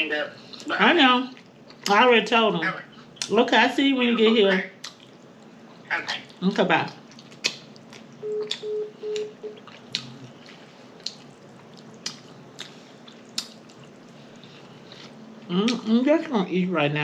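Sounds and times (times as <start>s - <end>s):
wet eating smacks: 7.0s - 8.6s, 9.2s - 15.1s
short beeps: 8.2s - 9.6s.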